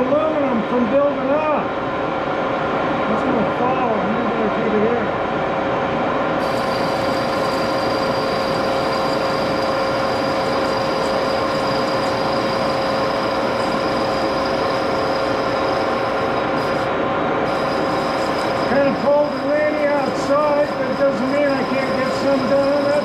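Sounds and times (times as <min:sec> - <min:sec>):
high thin squeal: 0:06.4 - 0:23.0
lathe whining: 0:06.4 - 0:23.0.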